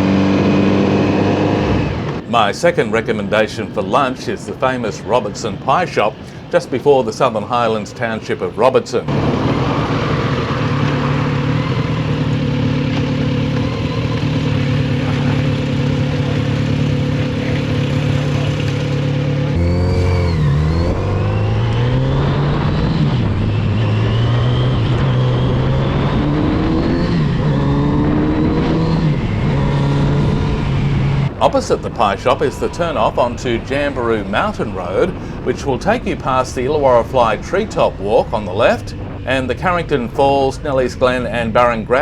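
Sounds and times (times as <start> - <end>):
motorcycle engine running: 9.1 - 42.0
wind noise: 19.6 - 42.0.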